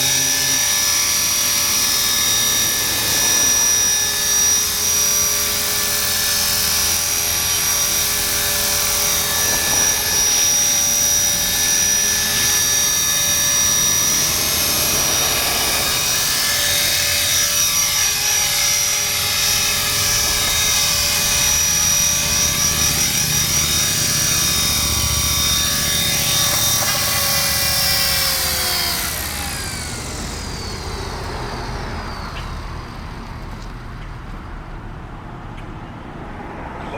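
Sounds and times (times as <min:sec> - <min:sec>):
helicopter motor whine: 0:00.0 - 0:34.4
rotor noise: 0:00.0 - 0:34.4.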